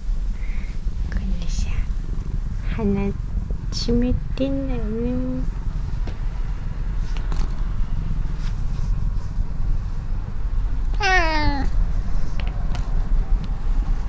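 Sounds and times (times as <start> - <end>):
low rumble: 0.0 - 14.0
cat meowing: 10.9 - 11.8.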